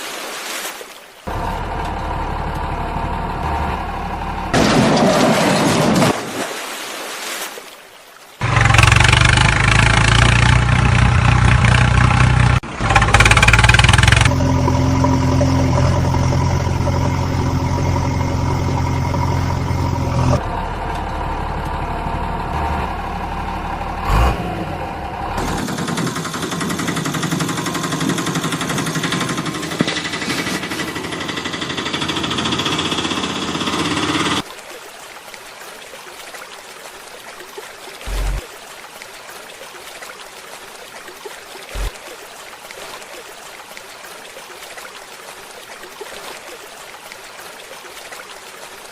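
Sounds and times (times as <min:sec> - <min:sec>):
motor vehicle engine running: 0:01.3 - 0:04.9, 0:08.4 - 0:34.4, 0:41.8 - 0:42.0.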